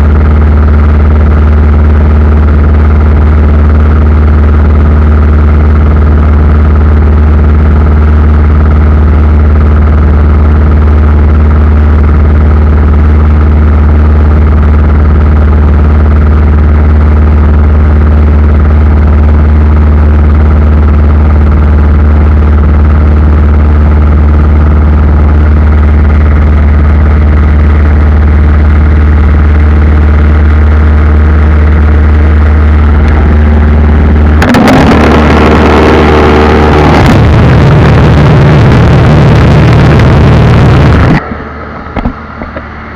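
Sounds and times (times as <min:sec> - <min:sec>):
aircraft engines droning: 0:23.5 - 0:40.2, 0:40.8 - 0:42.9.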